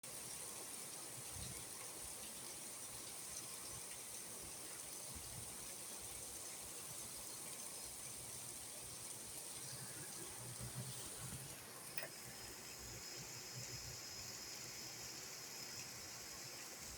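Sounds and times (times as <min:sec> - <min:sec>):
heavy rain hissing: 0:08.6 - 0:16.9.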